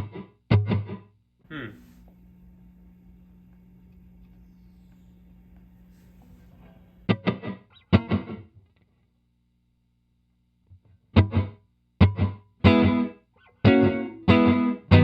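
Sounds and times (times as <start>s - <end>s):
electric guitar chords strummed: 0.0s - 1.7s, 7.0s - 8.6s, 10.8s - 15.0s
steady low hum: 1.3s - 7.7s.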